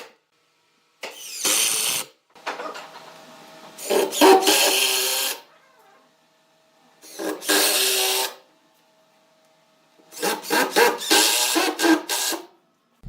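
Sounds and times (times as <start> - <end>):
tool working wood: 1.1 - 5.5, 7.0 - 8.4, 10.0 - 12.5.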